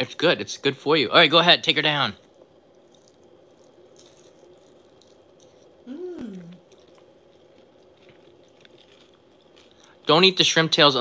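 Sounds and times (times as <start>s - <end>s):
person chewing crunchy food: 2.2s - 10.1s
person humming mm: 5.8s - 6.6s.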